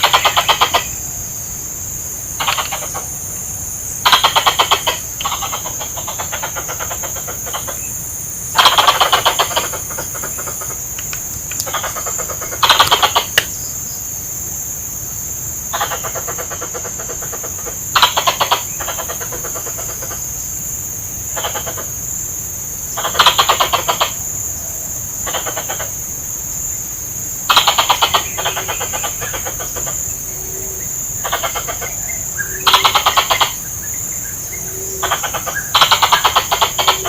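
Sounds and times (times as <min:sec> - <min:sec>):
squirrel chattering: 0:00.0 - 0:01.0, 0:02.4 - 0:03.1, 0:04.0 - 0:07.8, 0:08.5 - 0:13.5, 0:15.7 - 0:20.2, 0:21.4 - 0:21.9, 0:23.0 - 0:24.2, 0:27.5 - 0:30.1, 0:31.2 - 0:33.7, 0:34.9 - 0:37.0.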